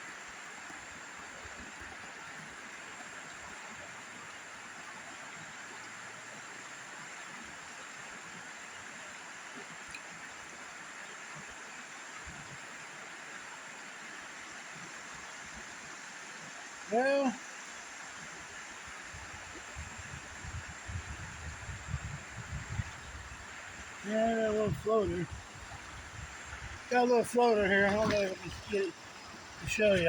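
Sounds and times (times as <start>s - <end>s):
river water flowing over rocks: 0.0s - 20.8s, 22.7s - 30.0s
faint tick: 9.8s - 10.1s.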